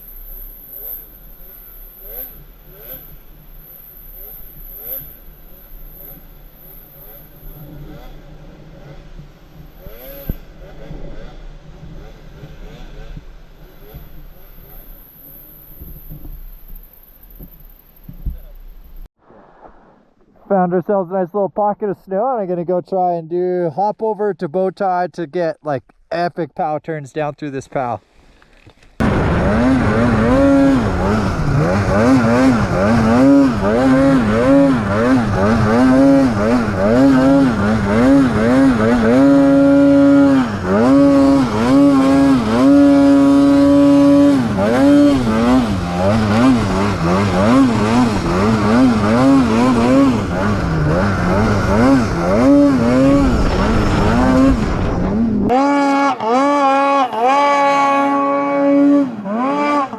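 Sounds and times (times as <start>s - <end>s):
snowmobile engine revving: 0.0s - 16.3s, 29.0s - 59.9s
track rumbling over snow: 27.6s - 59.9s.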